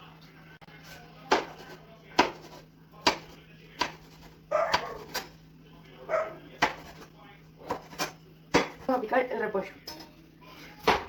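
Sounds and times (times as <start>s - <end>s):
knife chopping on cutting board: 1.3s - 5.3s, 6.6s - 8.9s.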